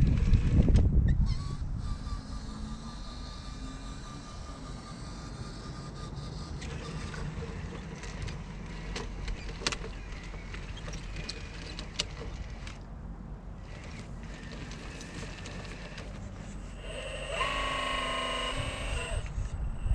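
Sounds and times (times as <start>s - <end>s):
wind rumbling on microphone: 0.0s - 3.1s, 18.4s - 19.9s
small electric motor and gears: 0.0s - 12.8s, 13.6s - 19.9s.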